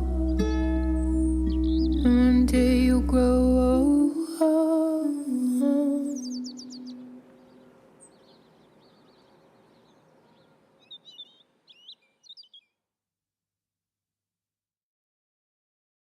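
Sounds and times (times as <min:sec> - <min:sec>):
faint bird chirps: 0:00.0 - 0:02.2, 0:05.1 - 0:12.8
low hiss: 0:00.0 - 0:12.4.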